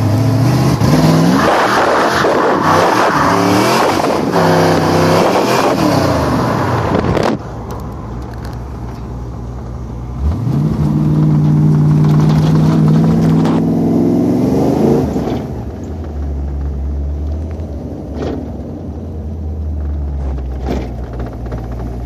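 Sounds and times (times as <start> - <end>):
car engine revving: 0.0 - 7.6, 9.8 - 18.7.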